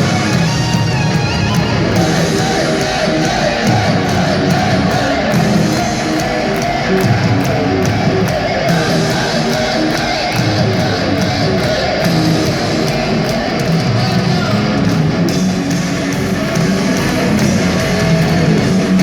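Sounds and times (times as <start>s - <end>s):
bass guitar: 0.0s - 19.0s
drum beat: 0.0s - 19.0s
electric guitar: 0.0s - 19.0s.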